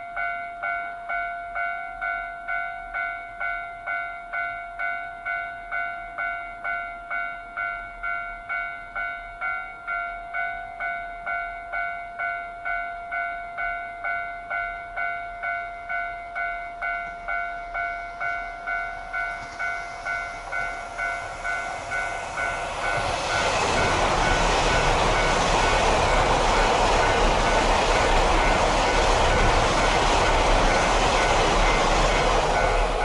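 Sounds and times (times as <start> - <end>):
crossing warning bell dinging: 0.0 - 33.0
diesel train passing: 16.8 - 33.0.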